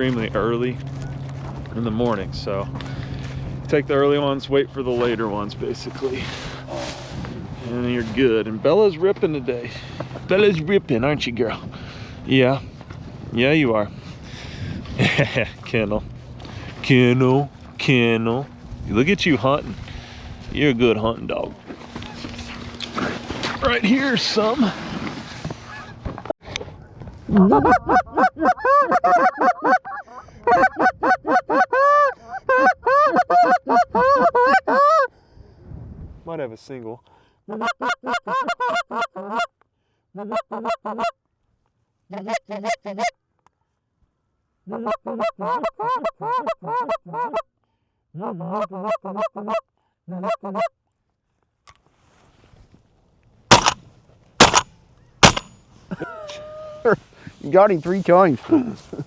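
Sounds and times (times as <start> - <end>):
goose call honks and clucks: 27.3 - 35.1, 37.5 - 39.6, 40.2 - 41.2, 42.1 - 43.2, 44.7 - 47.5, 48.1 - 50.7.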